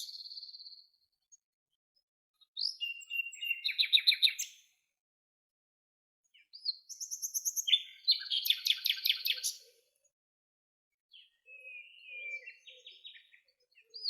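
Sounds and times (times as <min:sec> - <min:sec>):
songbird trilling song: 0:00.0 - 0:01.0, 0:02.4 - 0:04.8, 0:06.3 - 0:09.9, 0:11.1 - 0:14.0.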